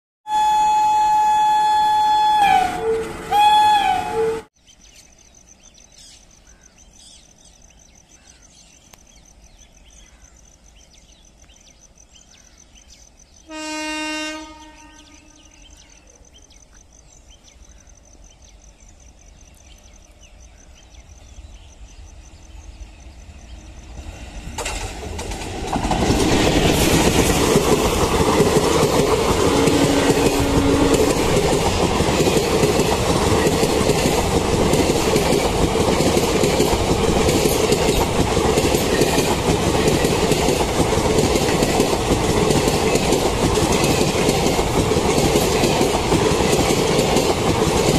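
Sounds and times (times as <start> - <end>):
locomotive horn blast: 0.2 - 4.5, 13.5 - 15.6, 29.4 - 31.4
train rumble: 19.6 - 47.9.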